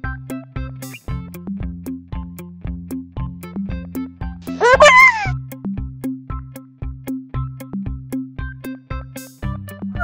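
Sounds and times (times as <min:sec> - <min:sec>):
light children's music: 0:04.5 - 0:05.3
meow sound effect: 0:04.6 - 0:05.3.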